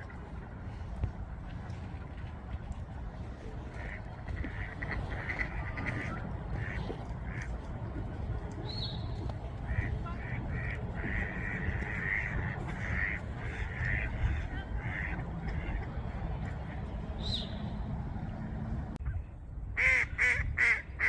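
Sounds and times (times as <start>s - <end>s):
steady low rumble: 0.0s - 21.0s
ducks quacking: 3.4s - 17.7s.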